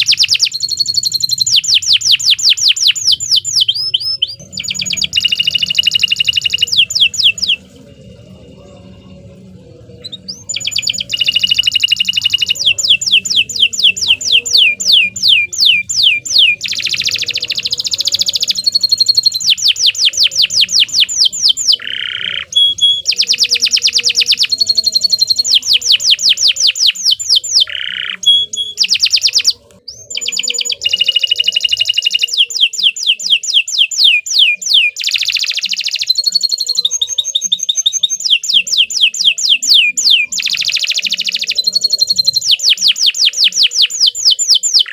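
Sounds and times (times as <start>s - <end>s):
canary singing: 0.0s - 44.9s.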